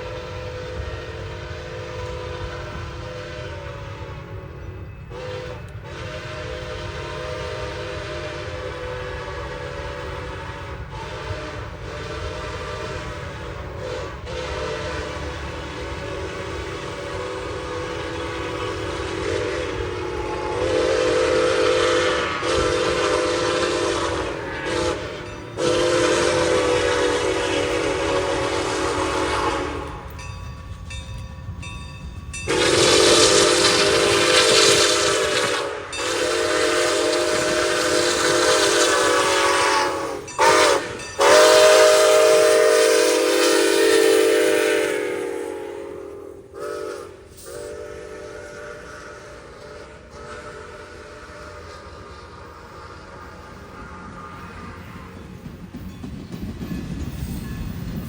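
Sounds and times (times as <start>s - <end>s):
locomotive air horn blasts: 0.0s - 30.2s, 32.5s - 55.3s
low train rumble: 0.0s - 58.0s.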